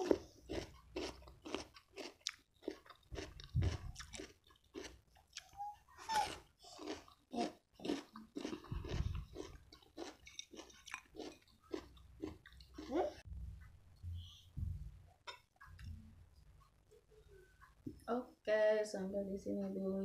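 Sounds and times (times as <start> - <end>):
crunchy chewing: 0.0 - 13.3.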